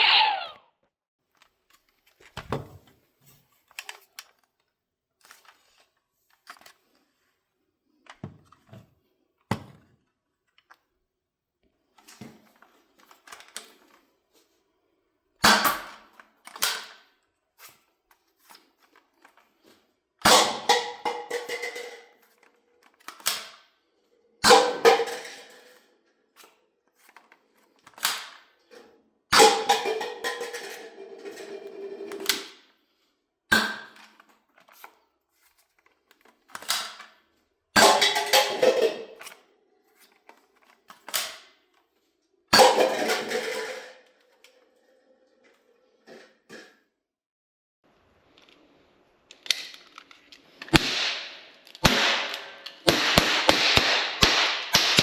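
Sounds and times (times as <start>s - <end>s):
foam-dart blaster shots: 50.7s - 55.0s.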